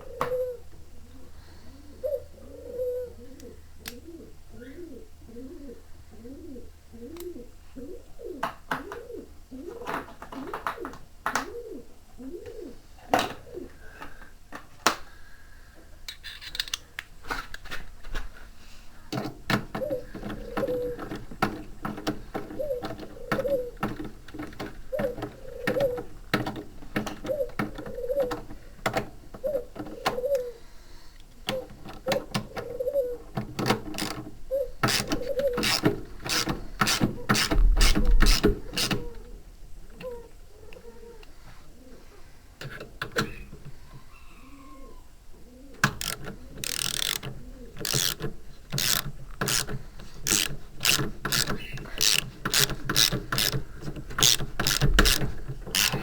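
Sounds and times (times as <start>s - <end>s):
ratchet spanner clicking: 45.9s - 48.2s, 48.8s - 53.6s, 54.2s - 56.0s
rhythmic squeaking: 46.0s - 53.6s, 54.2s - 56.0s.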